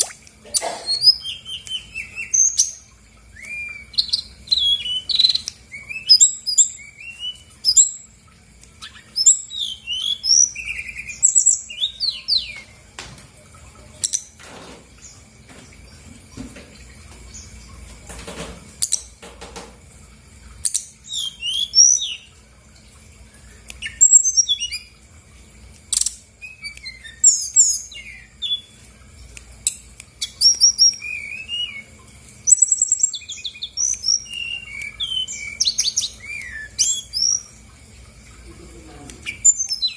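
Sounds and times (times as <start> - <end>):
bird singing chirps and trills: 0.0 - 12.8, 20.6 - 22.4, 23.4 - 25.0, 25.9 - 28.8, 29.6 - 37.7, 39.2 - 39.9.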